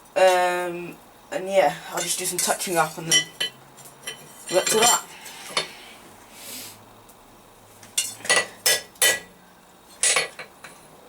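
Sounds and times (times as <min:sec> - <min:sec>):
hammer striking steel on anvil: 0:08.0 - 0:09.3.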